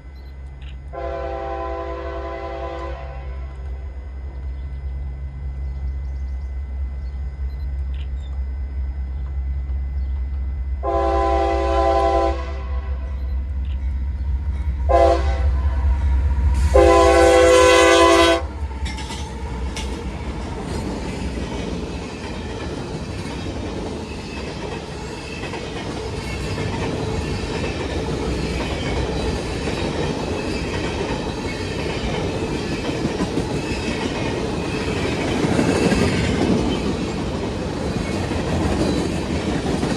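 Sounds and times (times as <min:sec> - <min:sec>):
locomotive engine rumble: 0:00.0 - 0:39.9
train wheels on rails: 0:00.0 - 0:39.9
locomotive air horn blasts: 0:00.9 - 0:03.6, 0:10.8 - 0:13.2, 0:14.9 - 0:18.6
wheels clicking over rail joints: 0:18.6 - 0:39.9.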